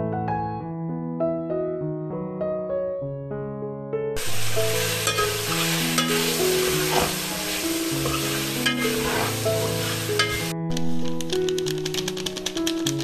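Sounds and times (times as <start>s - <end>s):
soft piano music: 0.0s - 13.0s
food sizzling in a pan: 4.2s - 10.5s
scraping while stirring: 4.2s - 10.5s.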